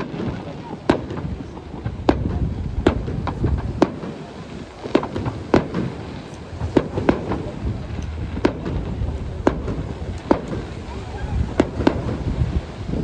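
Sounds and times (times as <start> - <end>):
fireworks bangs: 0.0 - 13.0
low rumble: 6.4 - 13.0.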